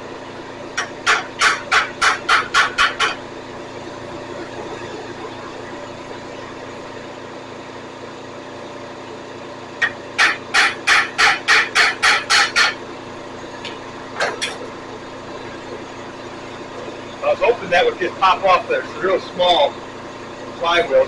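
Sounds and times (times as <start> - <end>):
steady shop hum: 0.0 - 21.0
hammer blows on metal: 0.8 - 3.2, 9.8 - 12.8.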